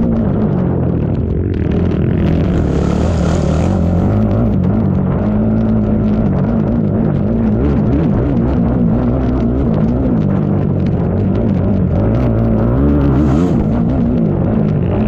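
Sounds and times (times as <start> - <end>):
atv engine running hard: 0.0 - 15.0
rush of higher noise: 2.2 - 4.7.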